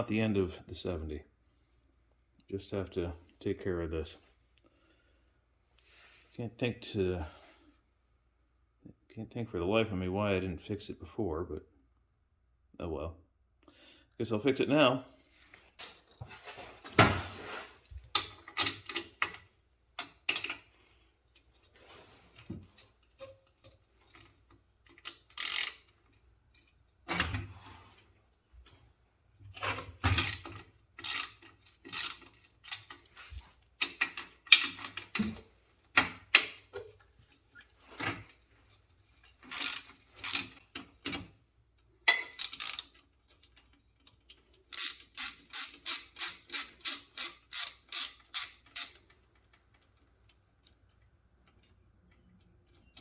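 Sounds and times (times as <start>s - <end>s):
wrench clicking and knocking on metal: 24.9s - 25.9s, 29.7s - 33.0s, 33.8s - 35.4s, 39.5s - 41.3s, 42.0s - 43.7s, 44.7s - 49.9s.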